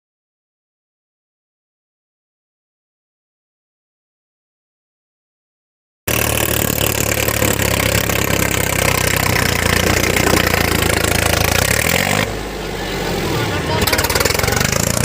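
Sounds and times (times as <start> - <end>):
tractor engine running: 6.1 - 15.0.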